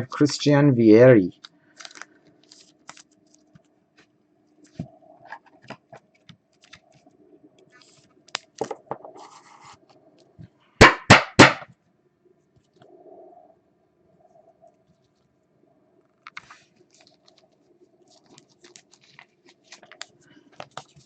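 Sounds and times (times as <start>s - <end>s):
loud knocks: 10.8s - 11.7s.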